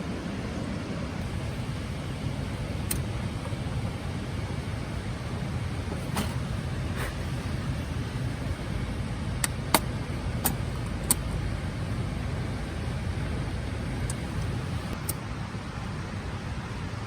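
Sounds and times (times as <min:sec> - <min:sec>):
vehicle running rumble: 0:01.2 - 0:15.1
sharp clicks: 0:09.4 - 0:11.4.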